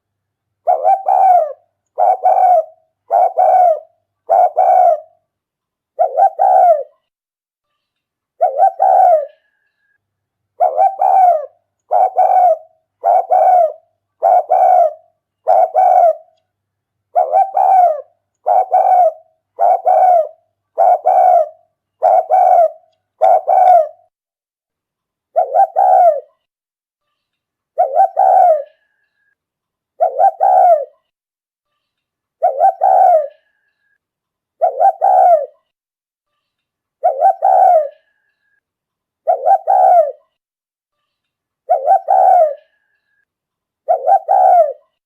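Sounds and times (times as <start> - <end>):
dove cooing: 0.6 - 5.2, 6.0 - 7.0, 8.4 - 9.5, 10.6 - 16.3, 17.1 - 24.1, 25.4 - 26.3, 27.8 - 28.9, 30.0 - 31.0, 32.4 - 33.5, 34.6 - 35.6, 37.0 - 38.1, 39.2 - 40.2, 41.7 - 42.8, 43.8 - 45.0.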